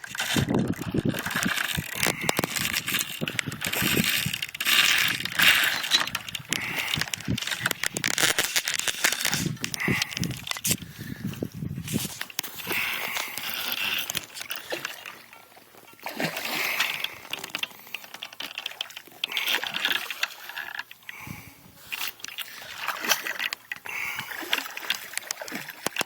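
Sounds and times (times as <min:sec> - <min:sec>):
fishing reel clicking and rattling: 0:00.0 - 0:10.8, 0:11.9 - 0:15.2, 0:16.7 - 0:21.1.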